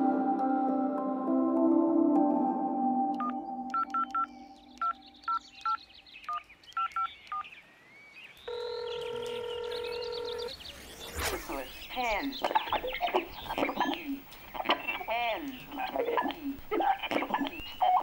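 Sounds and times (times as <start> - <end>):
tonal music: 0.0 - 5.6
steady dial tone: 3.2 - 5.4, 8.5 - 10.5, 11.9 - 18.0
telephone keypad beeps: 3.2 - 7.4.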